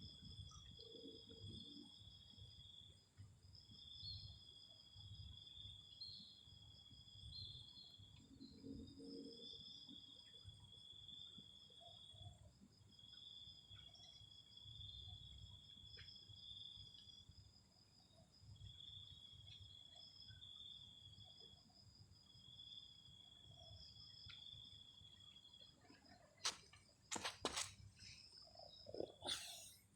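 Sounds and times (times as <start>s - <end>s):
insects trilling: 22.5s - 29.9s.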